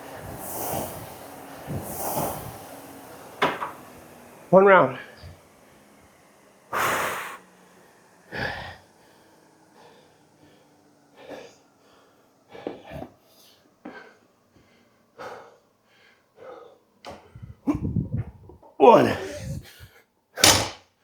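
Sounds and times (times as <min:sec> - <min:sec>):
person breathing hard: 0:06.7 - 0:18.2, 0:19.0 - 0:20.1.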